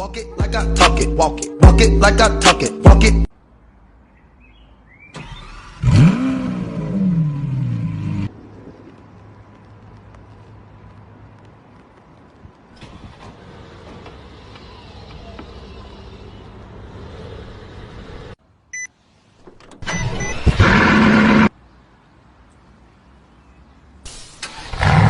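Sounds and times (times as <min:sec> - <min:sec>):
loud burst of car engine: 0:05.2 - 0:08.3, 0:19.9 - 0:21.5, 0:24.1 - 0:25.0.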